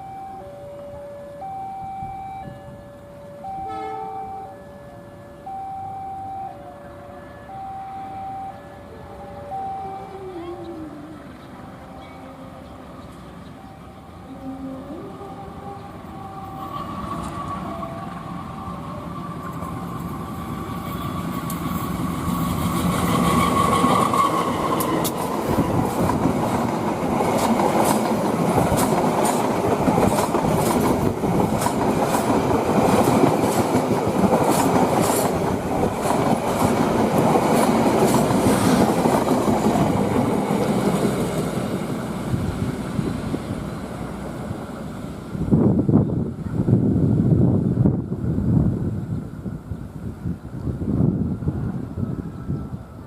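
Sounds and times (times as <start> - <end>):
train passing with high tone: 0.0 - 53.0
wheels clacking over rail joints: 19.4 - 43.0.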